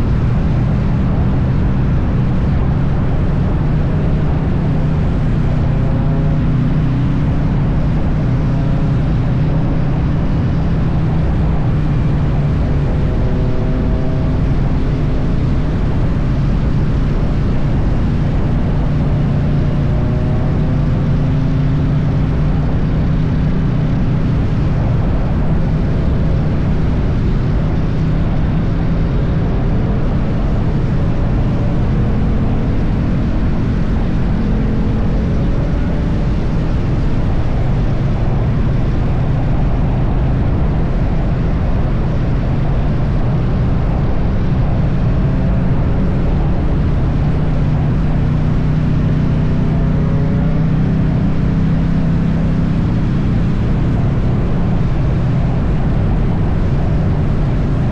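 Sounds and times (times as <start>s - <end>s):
motorcycle engine droning: 0.0s - 57.9s
wind and road noise: 0.0s - 57.9s.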